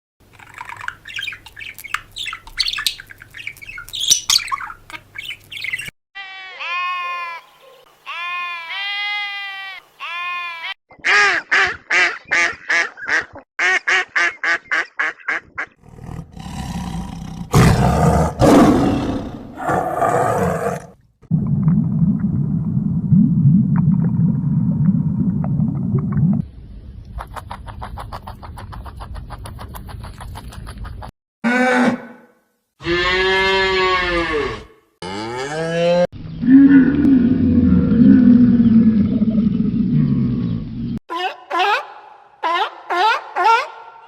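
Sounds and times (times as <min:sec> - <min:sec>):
animal roaring: 0:15.8 - 0:21.0, 0:32.8 - 0:40.9
low growling rumble: 0:36.4 - 0:41.0.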